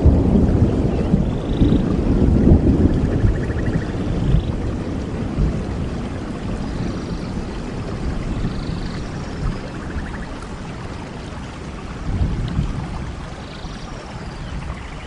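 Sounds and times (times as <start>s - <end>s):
steady rain with low rumble: 0.0s - 15.0s.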